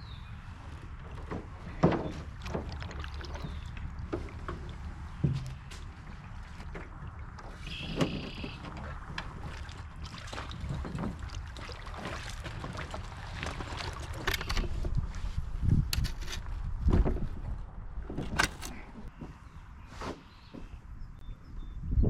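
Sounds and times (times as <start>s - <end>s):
paddle strokes in water: 0.5s - 15.4s
knocks and clicks against hull: 1.0s - 15.2s, 15.9s - 19.4s.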